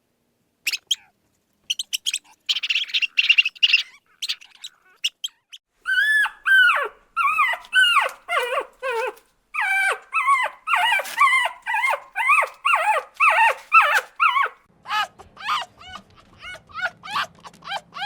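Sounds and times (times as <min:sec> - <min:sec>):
animal high-pitched cries: 0:00.7 - 0:01.1, 0:01.7 - 0:18.0.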